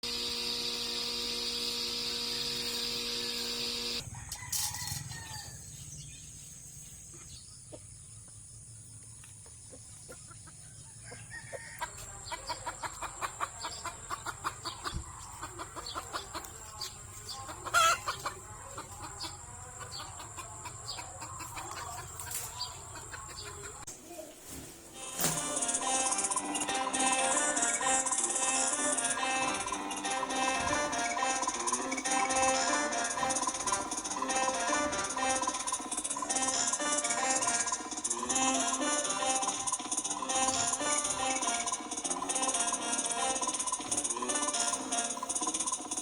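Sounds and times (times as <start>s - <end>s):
steady humming tone: 0.0s - 5.1s
chickens clucking: 0.3s - 46.0s
loud chicken call: 11.0s - 23.8s.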